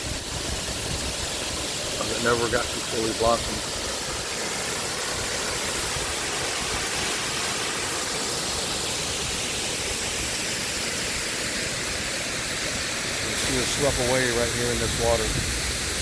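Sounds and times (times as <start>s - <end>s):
water rushing through dam gates: 0.0s - 16.0s.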